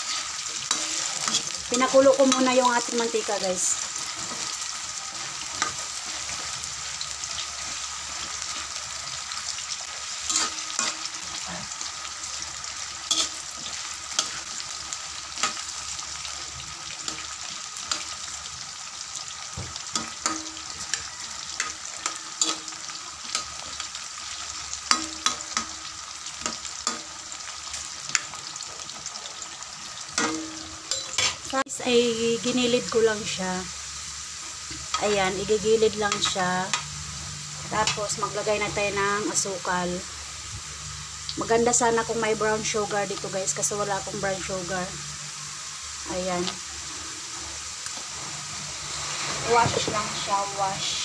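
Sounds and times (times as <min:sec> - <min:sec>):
spatula scraping a pan: 0:00.0 - 0:01.7, 0:09.8 - 0:12.4, 0:13.0 - 0:18.2, 0:47.0 - 0:50.4
food sizzling in hot oil: 0:00.0 - 0:51.0.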